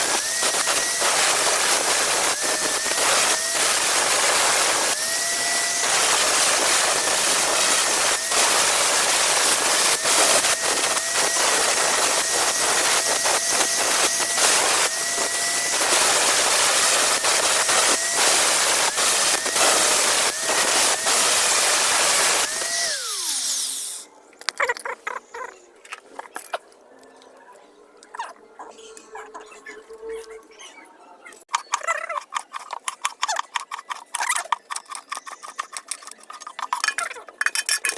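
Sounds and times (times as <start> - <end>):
grinder grinding knife blade: 0.0 - 24.1
grinder motor whine: 0.0 - 24.1.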